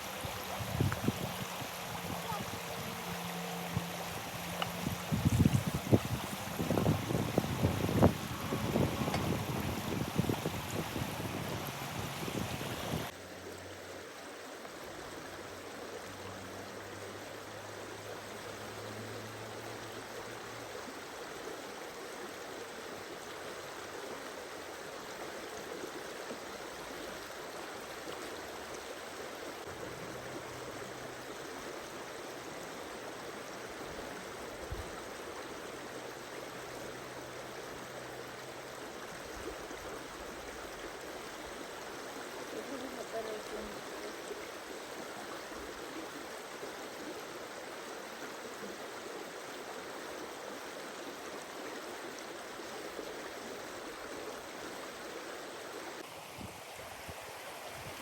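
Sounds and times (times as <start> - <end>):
wind noise: 0.0 - 3.0, 3.7 - 13.1
stream running: 0.0 - 58.0.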